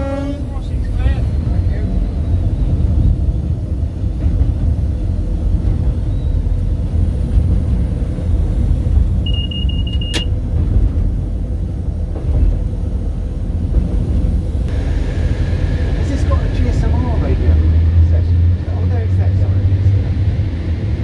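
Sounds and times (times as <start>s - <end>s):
diesel train rumbling: 0.0s - 21.0s
short high beep: 9.3s - 10.3s.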